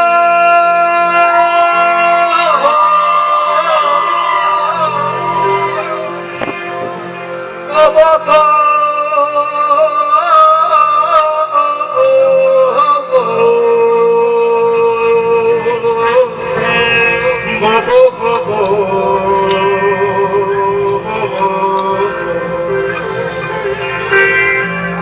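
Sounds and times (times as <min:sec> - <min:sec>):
low bass notes: 0:00.0 - 0:25.0
wavering melody line: 0:03.0 - 0:08.9, 0:19.9 - 0:25.0
sharp drum strikes: 0:05.2 - 0:07.1.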